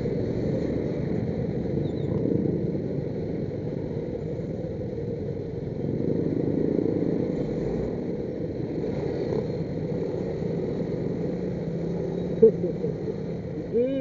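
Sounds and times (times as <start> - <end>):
motorcycle and car engines: 0.0 - 14.0.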